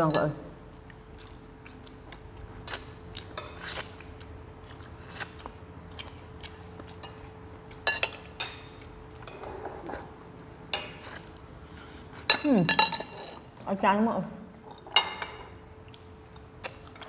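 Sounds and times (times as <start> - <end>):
faint steady hum: 0.0 - 17.0
person chewing food: 0.7 - 10.2, 15.8 - 17.0.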